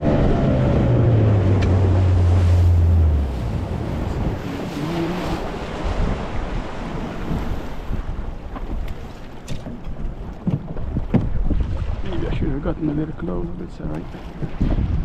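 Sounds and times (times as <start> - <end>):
boat engine humming: 0.0 - 11.5
water around hull: 0.0 - 15.0
wind buffeting microphone: 0.0 - 15.0.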